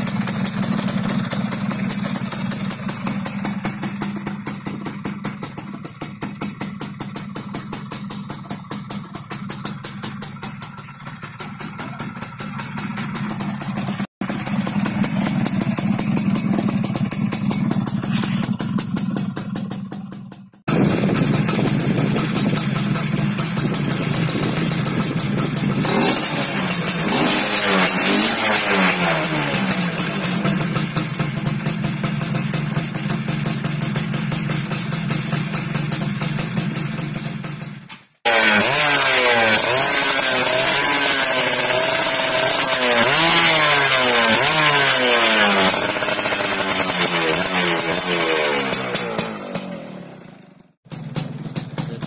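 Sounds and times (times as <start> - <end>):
two-stroke engine revving: 0.0 - 52.0
exhaust crackle: 9.2 - 29.1.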